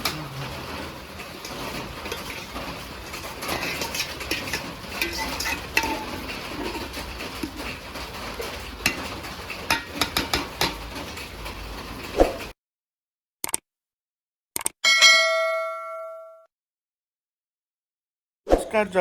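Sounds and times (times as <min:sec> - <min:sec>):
metal utensils clinking on pots: 0:00.0 - 0:11.6
sharp clicks: 0:13.4 - 0:13.6, 0:14.6 - 0:14.8.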